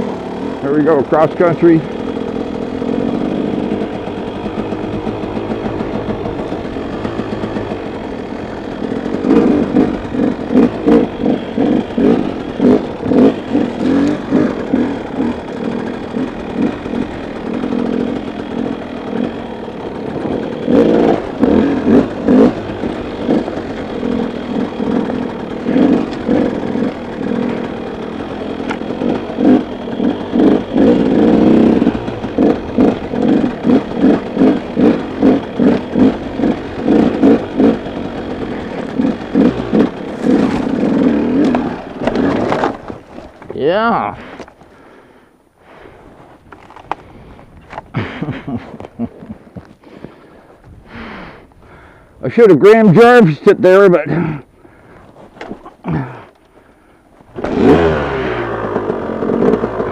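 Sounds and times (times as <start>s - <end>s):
bike clattering over terrain: 0.0s - 44.8s, 54.9s - 59.9s
dirt bike engine revving: 0.0s - 56.6s, 57.3s - 59.9s.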